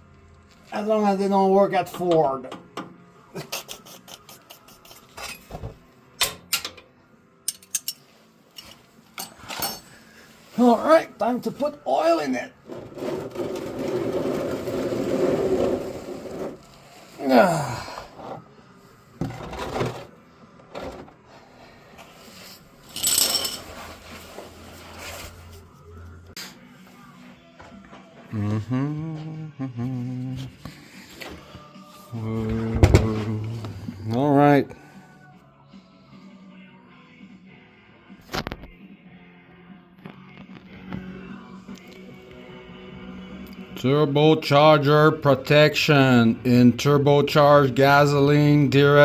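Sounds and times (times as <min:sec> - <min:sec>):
tools clinking and knocking: 0:07.5 - 0:08.0, 0:08.6 - 0:09.9, 0:22.9 - 0:23.8.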